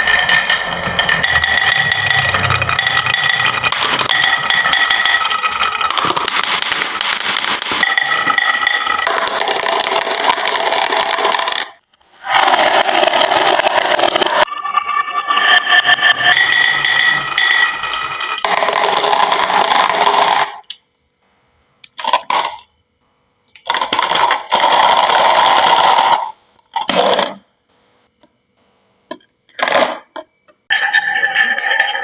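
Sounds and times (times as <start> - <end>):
marbles rattling down wooden run: 0.0 - 11.8, 12.4 - 14.5, 15.4 - 20.6.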